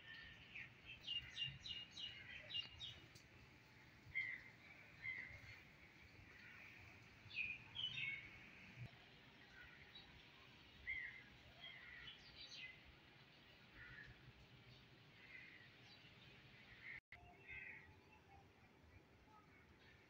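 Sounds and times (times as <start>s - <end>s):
small birds chirping: 0.0s - 8.6s.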